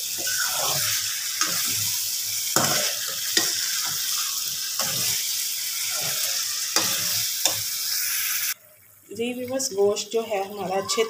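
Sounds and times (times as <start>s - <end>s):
metal spoon stirring and scraping: 0.0s - 7.7s
meat sizzling in oil: 0.0s - 11.0s.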